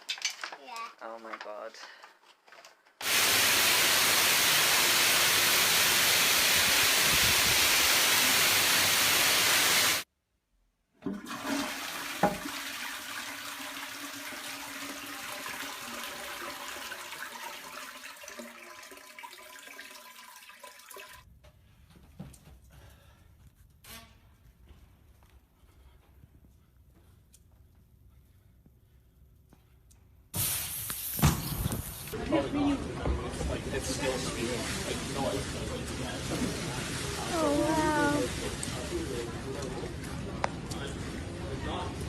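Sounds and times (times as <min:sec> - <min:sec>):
toilet flushing: 0:03.0 - 0:10.0, 0:11.0 - 0:21.3
water running: 0:03.0 - 0:10.0, 0:11.0 - 0:21.3, 0:33.7 - 0:39.6.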